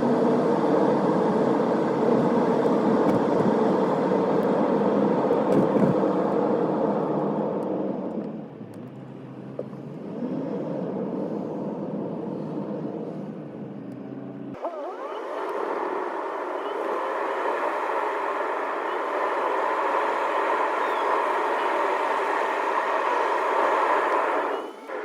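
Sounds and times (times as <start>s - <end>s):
car engine and road hum: 0.0s - 25.0s.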